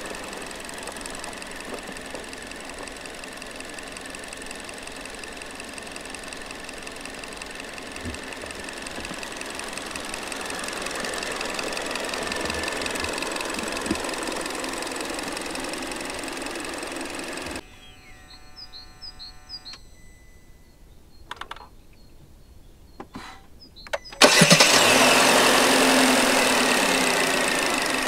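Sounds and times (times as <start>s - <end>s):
car engine running: 0.0s - 17.6s, 24.2s - 28.0s
car engine starting: 0.0s - 17.6s, 24.0s - 28.0s
clicks: 0.0s - 17.6s, 21.2s - 21.8s, 23.8s - 24.5s
short electronic beeps: 17.6s - 21.3s, 23.8s - 24.2s.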